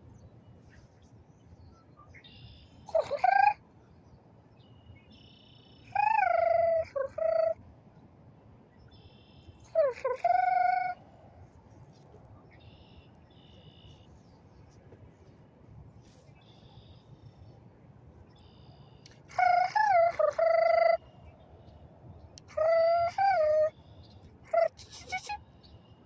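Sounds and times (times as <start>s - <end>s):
person imitating bird call: 2.9s - 3.6s, 5.9s - 7.6s, 9.6s - 11.0s, 19.3s - 21.1s, 22.4s - 23.7s, 24.5s - 25.4s.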